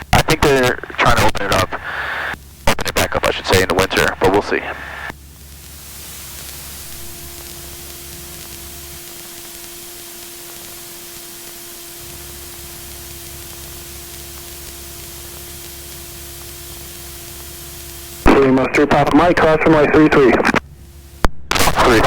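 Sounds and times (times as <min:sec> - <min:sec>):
constant hum tone: 0:00.0 - 0:22.0
headset static hiss: 0:00.0 - 0:22.0
deep drone: 0:04.2 - 0:21.3.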